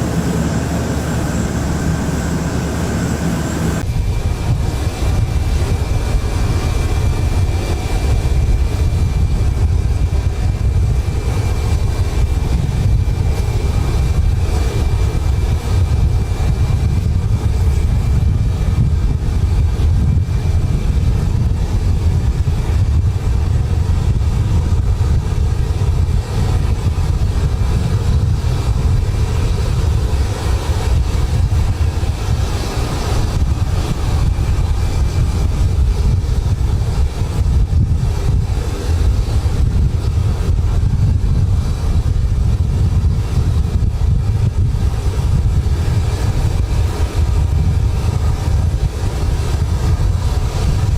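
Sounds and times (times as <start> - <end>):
faint high whine: 0.0 - 9.0
aircraft noise: 0.0 - 50.9
strong wind rumble: 0.0 - 50.9.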